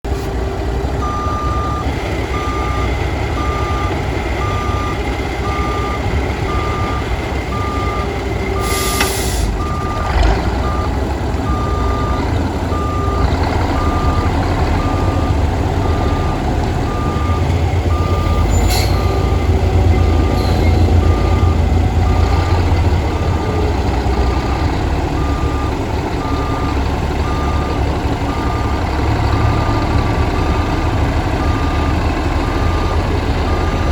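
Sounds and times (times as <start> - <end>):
diesel engine rumbling: 0.0 - 33.9
back-up alarm beeping: 1.0 - 10.9, 11.5 - 33.9
air release hiss: 8.6 - 9.5.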